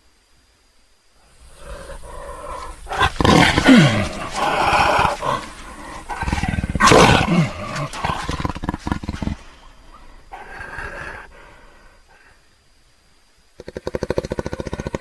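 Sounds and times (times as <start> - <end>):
large animal calling: 1.4 - 11.5.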